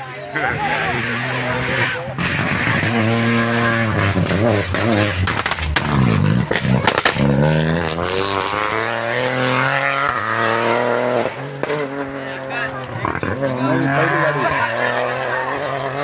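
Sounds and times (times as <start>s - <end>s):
rally car engine revving: 0.0s - 16.0s
sharp cracks: 0.7s - 13.0s.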